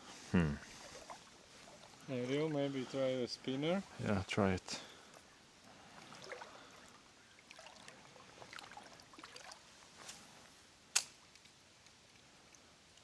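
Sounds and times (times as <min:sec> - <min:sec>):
flowing river water: 0:00.6 - 0:10.5.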